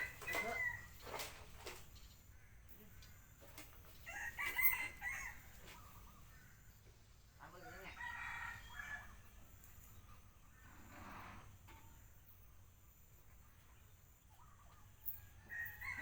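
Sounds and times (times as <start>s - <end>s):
rooster crowing: 0.0s - 1.0s, 4.0s - 5.7s, 7.6s - 9.3s, 15.2s - 16.0s.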